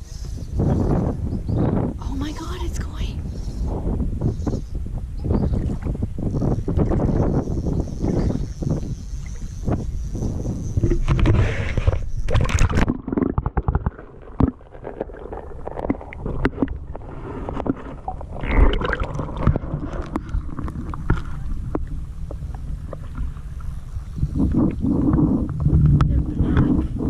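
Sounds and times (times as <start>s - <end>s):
wind and water rumble: 0.0s - 27.0s.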